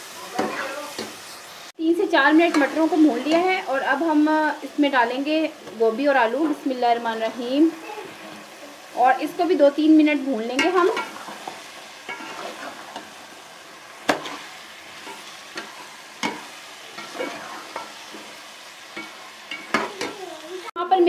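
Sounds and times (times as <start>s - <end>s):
vegetables sizzling in pot: 0.0s - 21.0s
spoon scraping and knocking pot: 12.1s - 13.1s.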